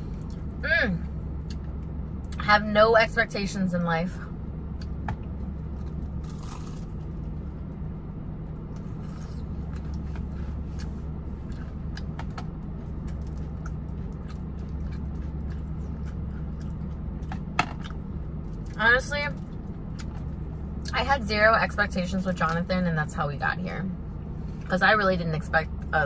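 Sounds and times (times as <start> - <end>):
chewing and crunching: 0.0 - 0.6, 4.7 - 20.9
low car hum: 0.0 - 26.0.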